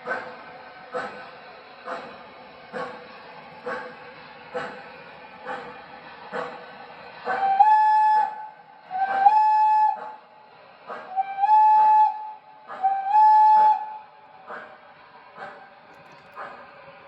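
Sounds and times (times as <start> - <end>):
steam locomotive chuffing: 0.0 - 17.0
model train steam whistle: 7.3 - 10.2, 11.0 - 14.2.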